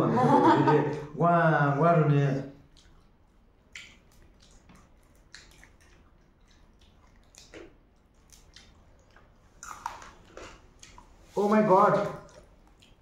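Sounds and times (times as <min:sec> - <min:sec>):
wet chewing and lip-smacking: 0:02.6 - 0:11.4, 0:12.1 - 0:13.0.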